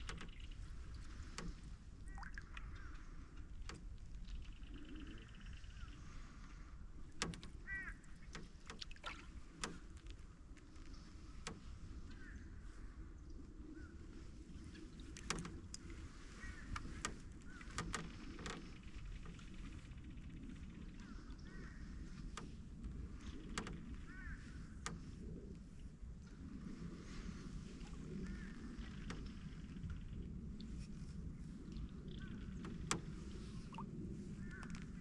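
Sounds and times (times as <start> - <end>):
water washing under canoe hull: 0.0 - 4.6, 6.0 - 12.0, 14.2 - 20.8, 26.3 - 35.0
paddle knocks and canoe creaks: 0.0 - 12.9, 14.1 - 30.8, 31.7 - 35.0.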